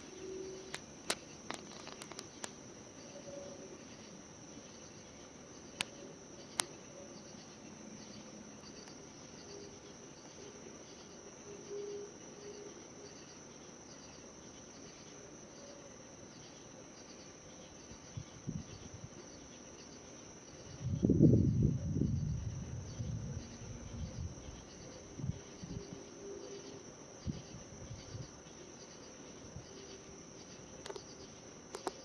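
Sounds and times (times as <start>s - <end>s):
crickets and night insects chirping: 0.0s - 32.0s
low rumble of thunder: 20.8s - 25.9s.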